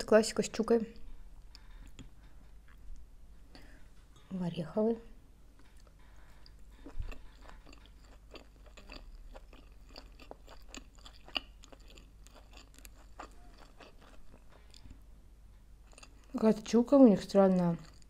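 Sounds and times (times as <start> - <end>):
wet chewing clicks: 5.6 - 15.0, 15.8 - 18.0.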